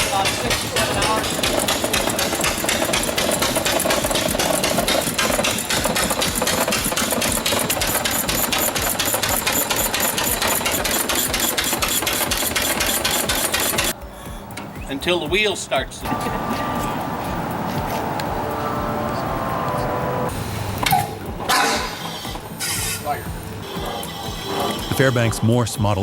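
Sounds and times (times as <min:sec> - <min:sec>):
large engine running: 0:00.0 - 0:13.9.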